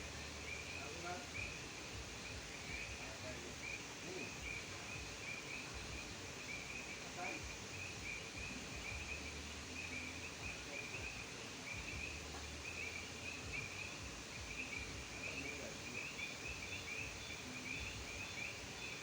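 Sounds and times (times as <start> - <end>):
frogs chirping: 0.0 - 19.0.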